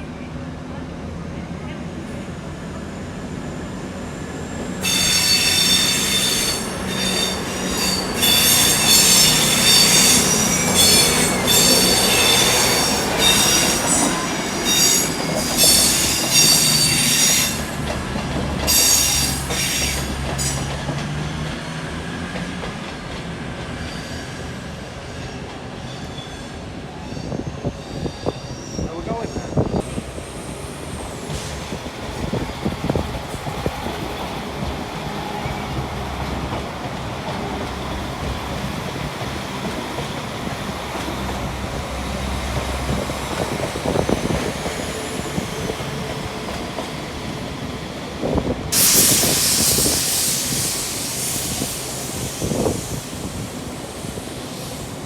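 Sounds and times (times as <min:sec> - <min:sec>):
low train rumble: 0:00.0 - 0:55.0
train wheels squealing: 0:04.8 - 0:20.9, 0:23.6 - 0:33.4, 0:42.9 - 0:46.2, 0:48.3 - 0:55.0.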